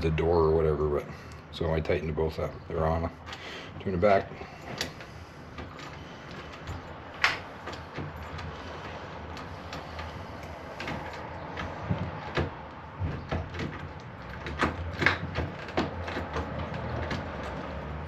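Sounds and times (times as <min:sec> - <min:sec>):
door lock clicks and knocks: 0:04.7 - 0:08.5, 0:09.3 - 0:17.8.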